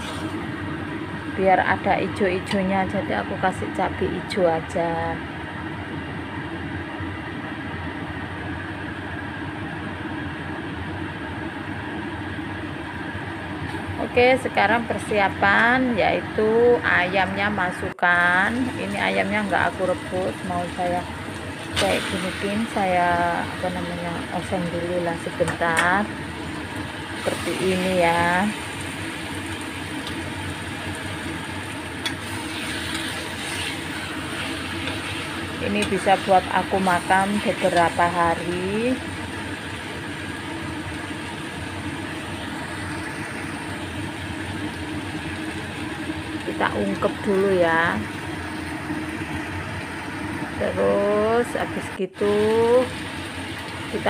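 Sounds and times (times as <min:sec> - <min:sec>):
paste sizzling in a wok: 0:18.6 - 0:22.8, 0:26.1 - 0:47.3.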